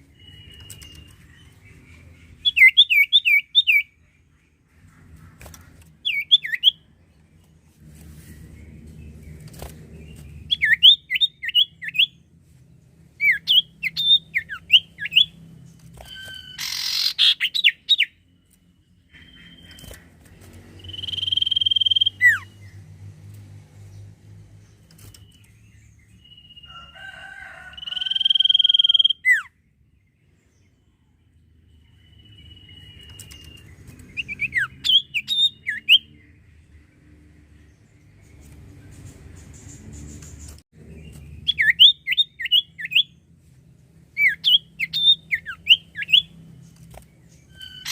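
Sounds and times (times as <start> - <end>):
bird chirping and whistling: 0.1 - 1.4, 2.4 - 4.0, 6.0 - 6.8, 10.4 - 12.2, 13.2 - 15.4, 16.0 - 18.2, 20.8 - 22.6, 28.0 - 29.5, 32.0 - 36.2, 41.4 - 43.1, 44.2 - 46.3, 47.5 - 47.9.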